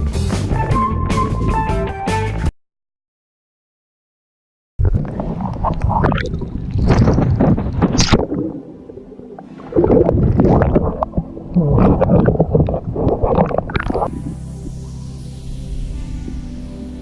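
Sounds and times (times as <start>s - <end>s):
water gurgling and sloshing: 4.8s - 15.0s.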